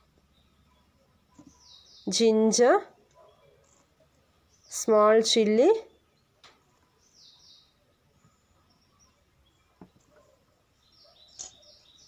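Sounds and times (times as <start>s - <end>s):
faint bird chirps: 0.0s - 2.3s, 5.8s - 12.0s.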